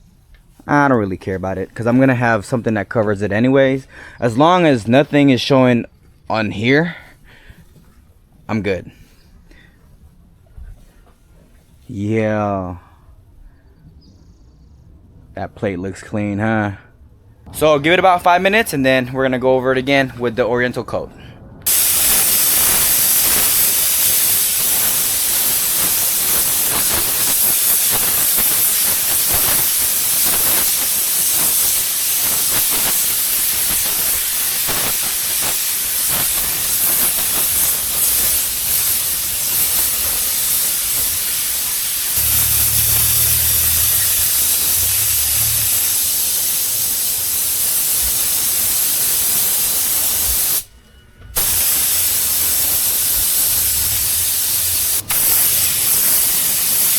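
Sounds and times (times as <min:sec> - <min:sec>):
spray gun hissing: 0:21.7 - 0:50.7, 0:51.4 - 0:56.9
low hum: 0:42.2 - 0:46.5.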